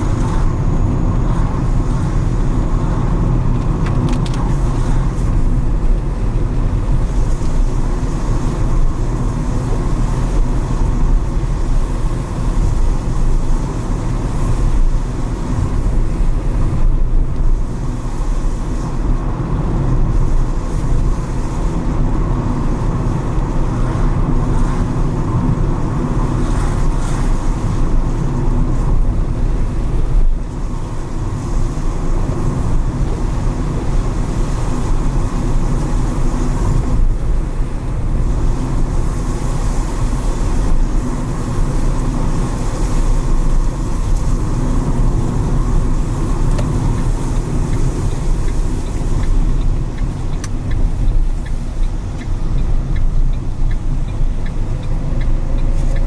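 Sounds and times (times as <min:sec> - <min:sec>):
car engine rumble: 0:00.0 - 0:56.0
tyres hissing on wet road: 0:00.0 - 0:56.0.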